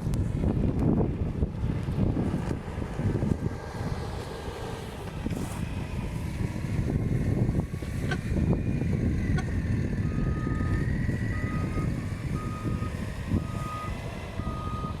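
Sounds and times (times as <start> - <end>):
wind noise on microphone: 0.0 - 4.4, 5.1 - 15.0
reversing alarm beeping: 9.4 - 15.0.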